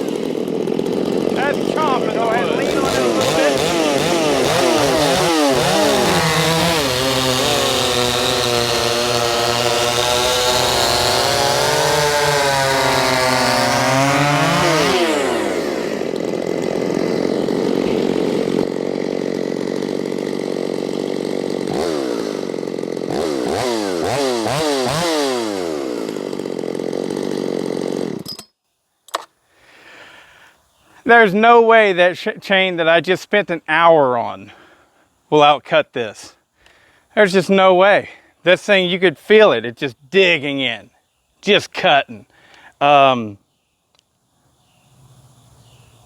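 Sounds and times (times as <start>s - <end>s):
chainsaw cutting at full throttle: 0.0s - 28.3s, 33.8s - 34.9s, 42.2s - 43.0s
chainsaw idling and revving: 0.0s - 28.3s.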